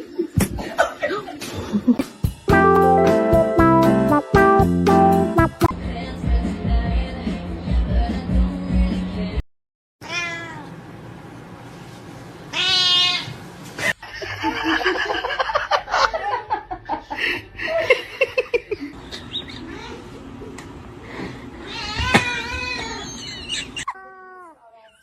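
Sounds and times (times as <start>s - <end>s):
cat meowing: 10.0s - 10.7s, 12.5s - 13.4s.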